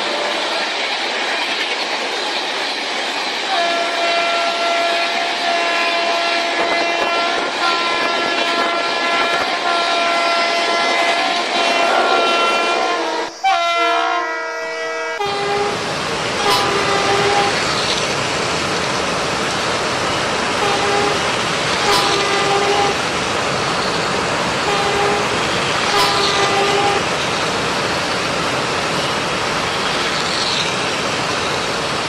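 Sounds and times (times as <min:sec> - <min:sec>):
electronic train horn effects: 0:03.5 - 0:15.8, 0:16.4 - 0:17.8, 0:20.6 - 0:23.0, 0:24.6 - 0:27.1.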